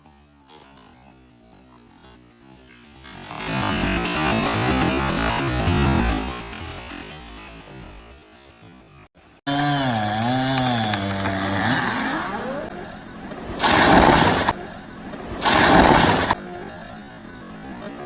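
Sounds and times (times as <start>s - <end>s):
chainsaw engine revving: 0.0s - 14.6s
chainsaw rasping bursts: 2.8s - 8.9s, 9.5s - 12.6s.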